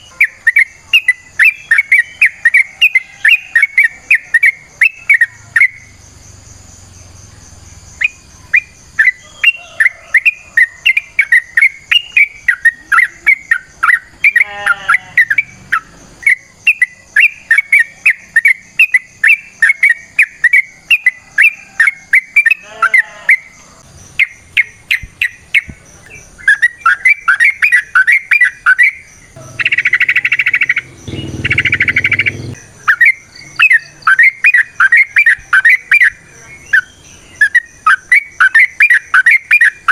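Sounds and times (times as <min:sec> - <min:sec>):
harsh buzzy bird calls: 0:00.0 - 0:39.9
bird chattering: 0:24.2 - 0:39.9
bird chirping sharp notes: 0:26.4 - 0:34.7.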